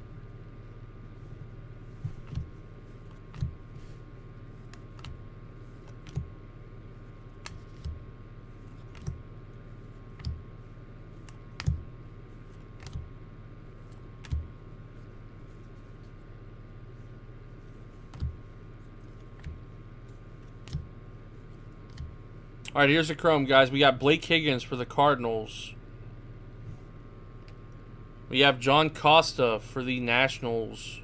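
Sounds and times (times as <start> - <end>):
electrical hum: 0.0 - 31.0
cards clicking and tapping: 2.0 - 4.0, 4.7 - 6.3, 7.4 - 9.2, 10.1 - 10.5, 11.2 - 11.9, 12.5 - 13.1, 13.9 - 14.6, 18.1 - 18.5, 20.4 - 20.9.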